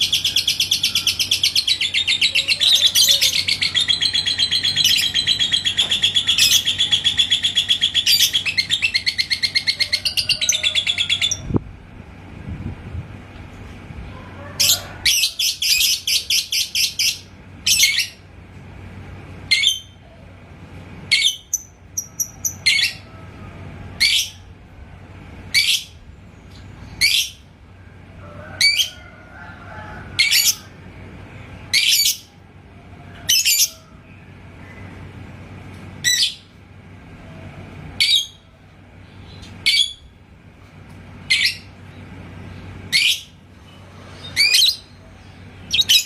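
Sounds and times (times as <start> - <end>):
lovebird shrill chirps: 45.7 - 46.0.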